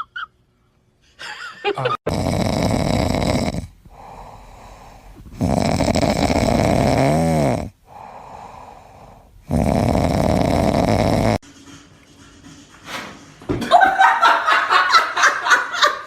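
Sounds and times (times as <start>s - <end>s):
animal snoring: 2.1s - 11.4s
quiet breathing: 2.9s - 11.4s.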